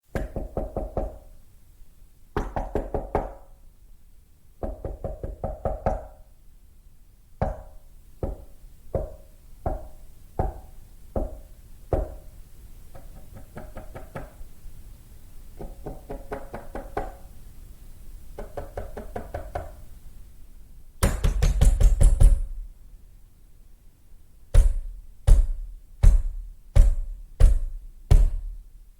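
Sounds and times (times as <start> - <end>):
pounding on a door: 0.1 - 1.2, 2.4 - 3.4, 4.6 - 6.2, 7.4 - 12.2, 15.6 - 17.2, 21.0 - 22.6, 24.5 - 28.6
knocking on a door: 0.1 - 1.3, 2.4 - 3.5, 4.6 - 6.2, 7.4 - 12.2, 12.9 - 14.4, 15.6 - 17.3, 18.4 - 19.8, 21.0 - 22.6, 24.5 - 28.6.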